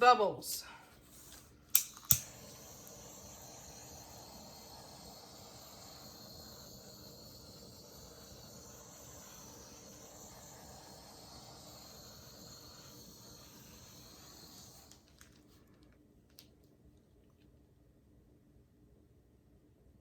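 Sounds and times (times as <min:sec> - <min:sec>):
torch flame hissing: 0:01.1 - 0:15.3.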